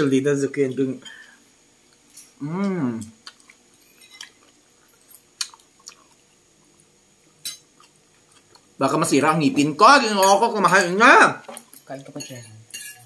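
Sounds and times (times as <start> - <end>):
quiet chewing: 1.8 - 8.8
person humming: 2.4 - 3.2.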